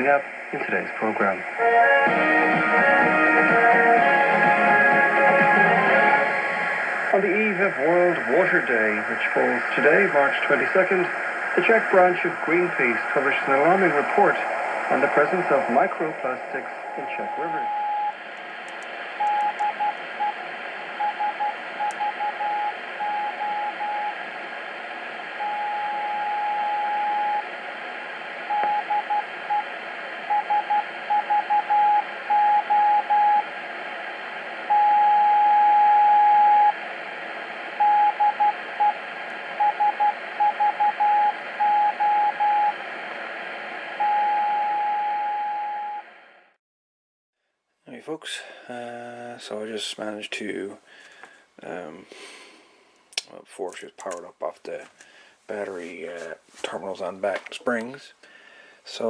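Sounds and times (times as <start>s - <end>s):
radio static hiss: 0.0s - 45.0s, 48.0s - 59.0s
morse code beeps: 19.2s - 20.4s.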